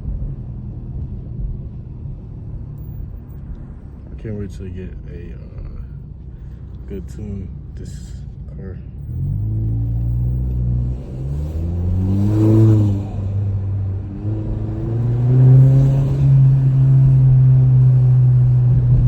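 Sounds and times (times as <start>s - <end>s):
car engine accelerating: 5.4s - 19.0s.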